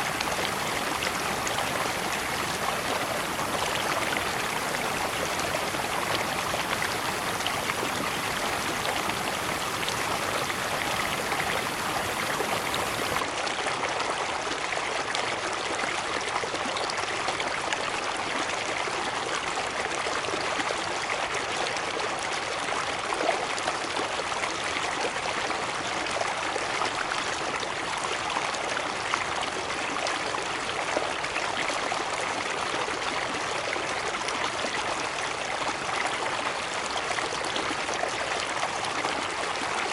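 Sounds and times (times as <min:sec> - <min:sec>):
waterfall rushing and splashing: 0:00.0 - 0:13.3.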